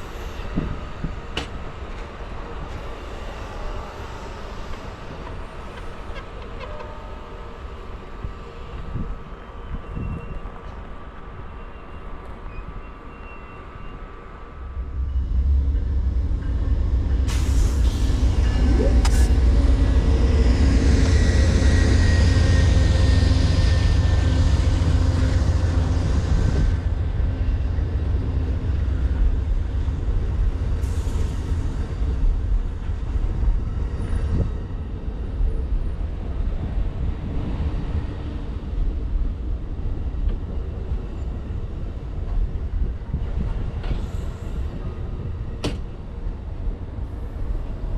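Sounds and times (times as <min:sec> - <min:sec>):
diesel locomotive rumbling: 0:00.0 - 0:47.9
high-pitched squeal: 0:14.7 - 0:26.8
air brakes hissing: 0:17.3 - 0:19.8.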